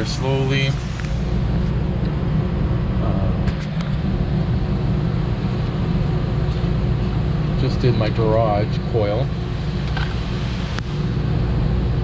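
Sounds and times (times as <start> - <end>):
low hum of boiler equipment: 0.0 - 12.0.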